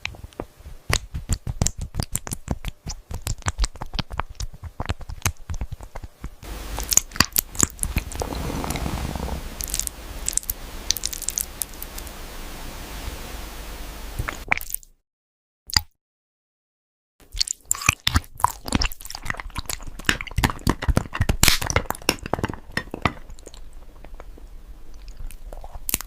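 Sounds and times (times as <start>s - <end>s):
steady background noise: 6.4s - 14.4s.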